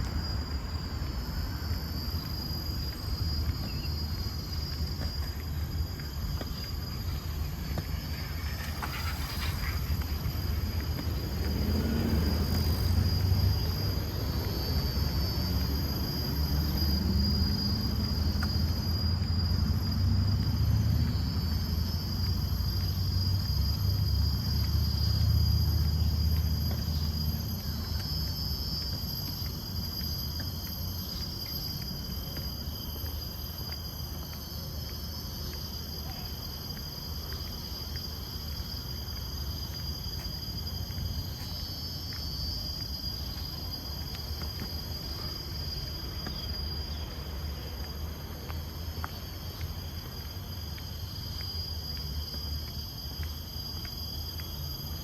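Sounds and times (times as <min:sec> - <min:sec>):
insects buzzing: 0:00.0 - 0:55.0.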